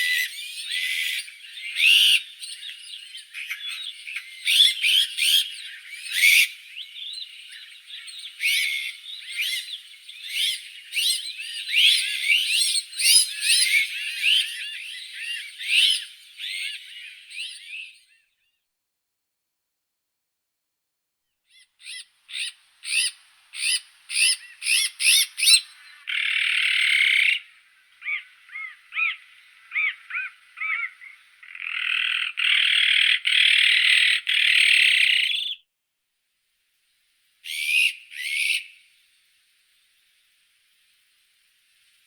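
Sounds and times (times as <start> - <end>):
magpie calling: 0.0 - 17.7, 21.5 - 35.6, 37.4 - 38.8.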